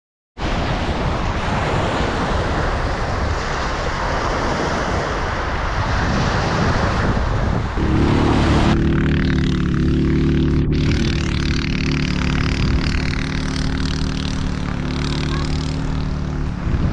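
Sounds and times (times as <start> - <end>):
sea surf washing: 0.4 - 10.1
wind buffeting microphone: 0.6 - 16.9
low drone with overtones: 7.7 - 16.9.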